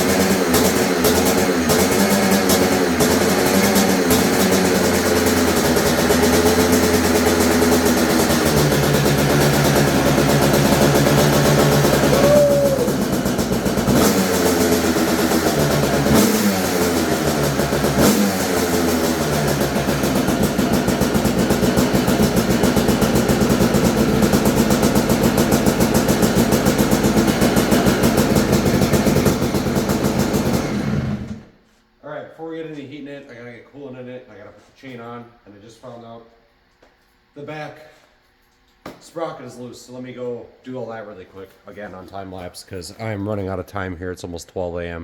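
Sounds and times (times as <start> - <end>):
two-stroke engine revving and idling: 0.0 - 31.6.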